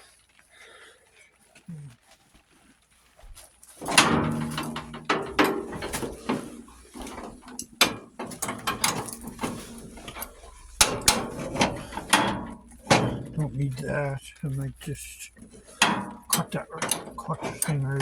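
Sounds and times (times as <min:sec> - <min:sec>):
metal tools clanking and scraping: 0:03.8 - 0:18.0
sharp knocks and clicks: 0:03.8 - 0:18.0.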